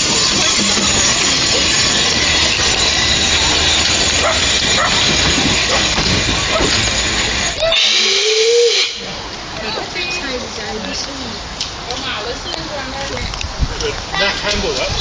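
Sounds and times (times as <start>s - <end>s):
steam hissing from locomotive: 0.0s - 10.6s.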